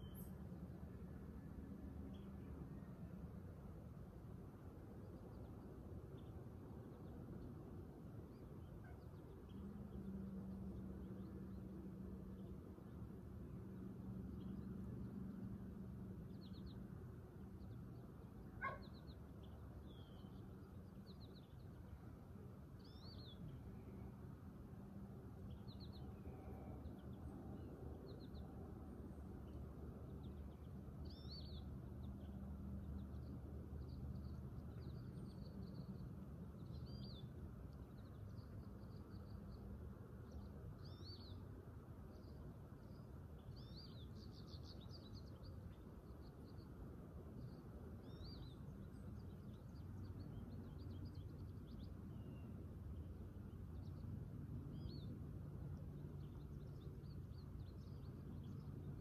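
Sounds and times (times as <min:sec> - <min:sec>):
small birds chirping and trilling: 0:18.6 - 0:22.1, 0:22.8 - 0:24.1, 0:29.4 - 0:41.4, 0:42.1 - 0:46.7, 0:47.4 - 0:55.2, 0:56.0 - 0:59.0.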